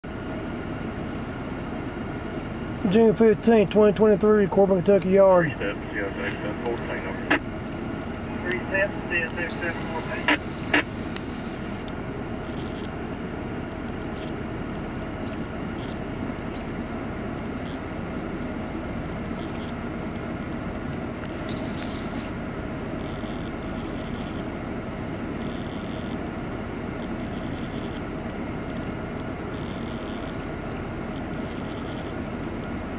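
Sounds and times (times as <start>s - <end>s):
short hiss: 9.4s - 11.8s, 21.4s - 22.3s.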